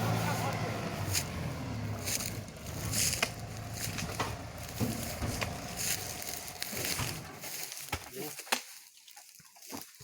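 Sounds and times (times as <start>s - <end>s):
machine motor running: 0.0s - 7.4s
sharp cracks and knocks: 2.1s - 8.8s.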